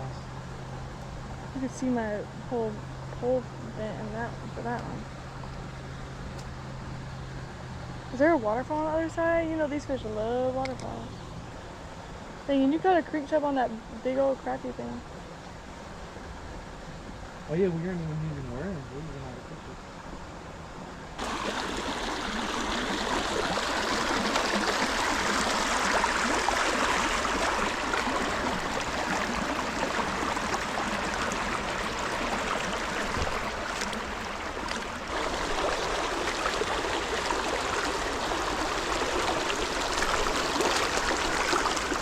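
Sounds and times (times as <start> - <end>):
creek water rushing over rocks: 21.2 - 42.0.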